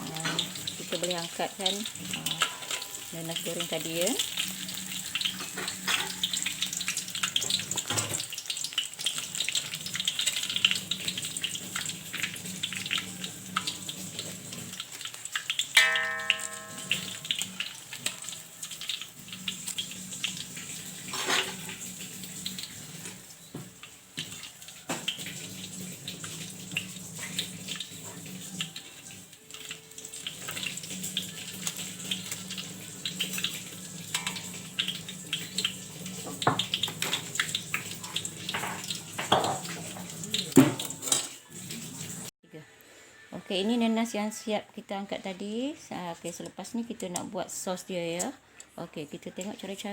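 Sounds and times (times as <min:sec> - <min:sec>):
food deep-frying in hot oil: 0:00.0 - 0:42.3, 0:45.1 - 0:49.9
utensil clinking in pan: 0:02.3 - 0:03.5, 0:15.7 - 0:18.4.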